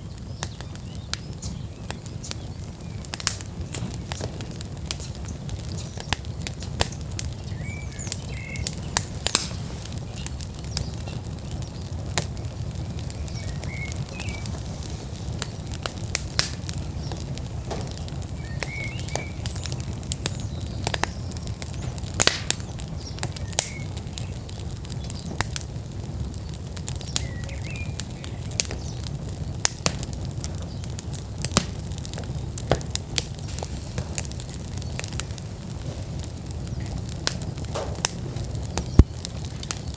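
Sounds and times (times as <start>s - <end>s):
low fire rumble: 0.0s - 39.9s
wood fire crackling and popping: 0.0s - 39.9s
faint bird chirps: 18.4s - 21.6s.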